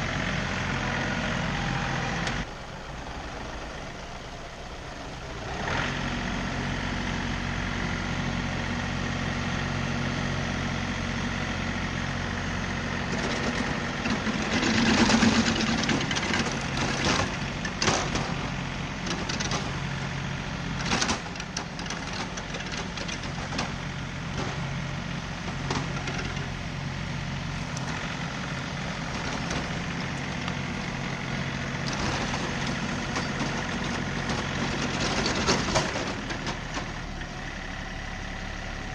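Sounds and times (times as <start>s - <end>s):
tractor diesel engine running: 0.0s - 38.9s
knocks and clatters: 13.1s - 19.8s, 20.8s - 24.8s, 25.4s - 26.5s, 31.8s - 37.0s.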